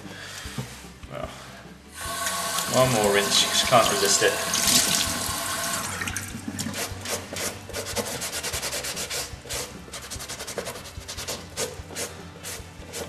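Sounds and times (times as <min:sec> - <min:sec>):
running tap water: 0:02.0 - 0:06.8.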